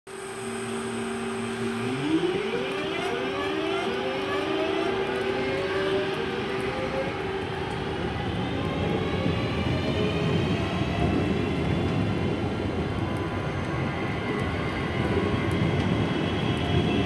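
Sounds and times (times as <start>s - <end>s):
electric hum: 0.1s - 7.2s
traction motors whining: 0.1s - 7.9s.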